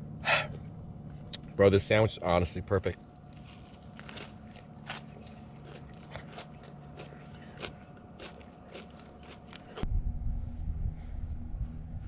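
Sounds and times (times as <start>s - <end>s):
person chewing crunchy food: 3.0s - 9.9s.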